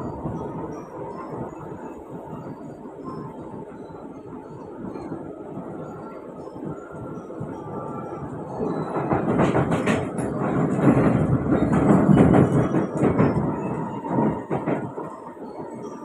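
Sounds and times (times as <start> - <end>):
train wheels rumbling on rail: 0.0 - 16.0
train wheel clacks: 7.4 - 16.0.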